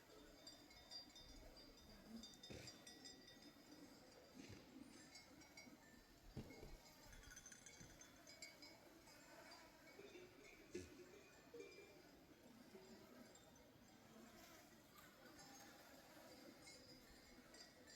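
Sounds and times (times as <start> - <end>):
sheep bells clinking: 0.0 - 17.9.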